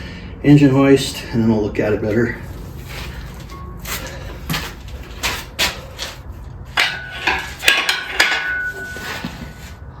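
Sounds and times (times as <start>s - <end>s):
faint steady ring: 3.4s - 4.5s, 6.8s - 10.0s
metal chain clanks and clinks: 6.7s - 9.7s.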